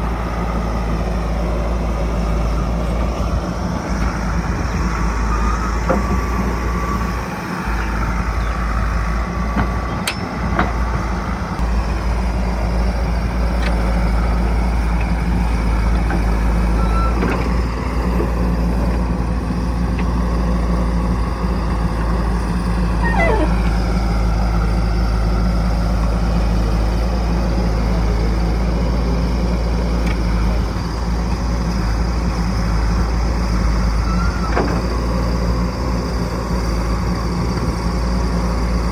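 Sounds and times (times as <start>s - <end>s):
diesel engine running: 0.0s - 38.9s
whining tone falling in pitch: 23.0s - 23.7s.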